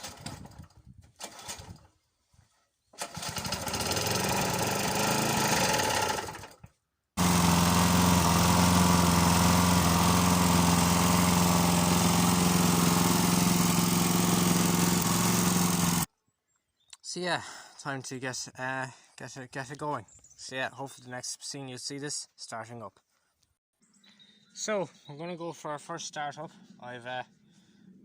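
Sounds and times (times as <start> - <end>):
small lawnmower engine running: 3.0 - 16.1.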